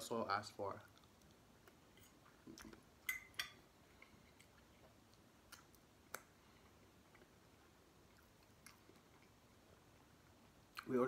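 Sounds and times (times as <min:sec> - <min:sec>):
mouth clicks of chewing: 0:04.0 - 0:06.4, 0:08.1 - 0:09.4.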